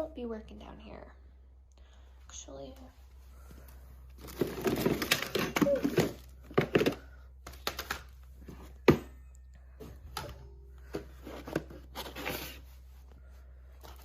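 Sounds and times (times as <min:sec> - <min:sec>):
hands rummaging through small parts: 0:04.1 - 0:10.2.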